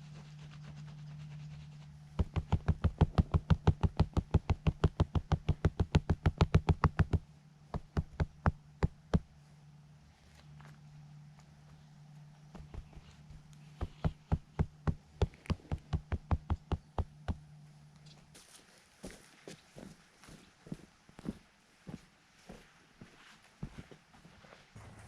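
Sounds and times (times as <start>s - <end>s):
rapid knocking: 2.2s - 9.2s, 12.5s - 17.4s.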